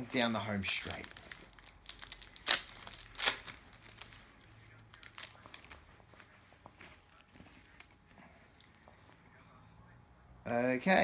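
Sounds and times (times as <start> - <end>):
packet ripping: 0.0 - 4.2, 4.8 - 5.8
packet and cards rustling: 0.0 - 8.1.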